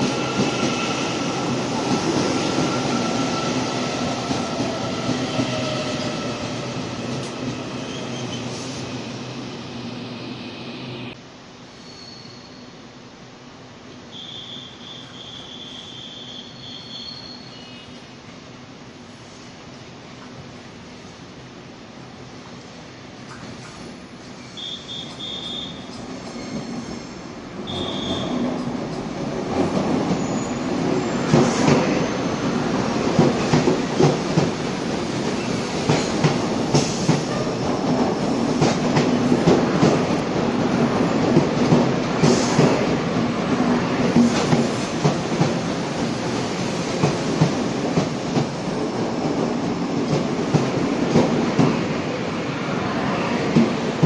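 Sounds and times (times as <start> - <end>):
short high squeals: 11.8 - 12.7, 14.1 - 17.8.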